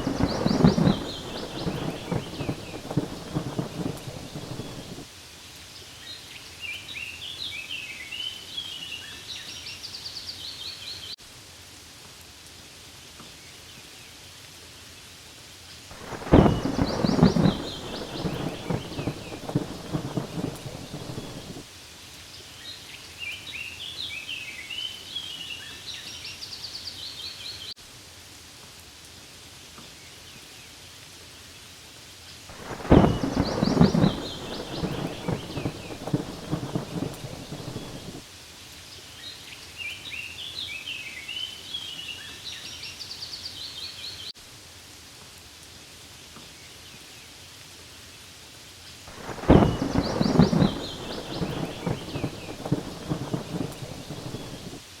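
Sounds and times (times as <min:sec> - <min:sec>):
rolling thunder rumbling: 0:00.0 - 0:05.1, 0:16.0 - 0:21.6, 0:32.5 - 0:38.2, 0:49.1 - 0:54.8
steady rain falling: 0:00.0 - 0:55.0
high chirping calls: 0:16.0 - 0:21.6, 0:32.6 - 0:38.2, 0:49.2 - 0:54.8.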